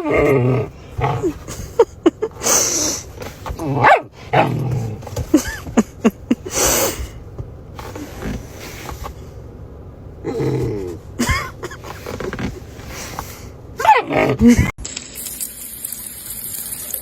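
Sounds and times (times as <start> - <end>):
dog barking and yelping: 3.6 - 4.9, 13.8 - 14.6.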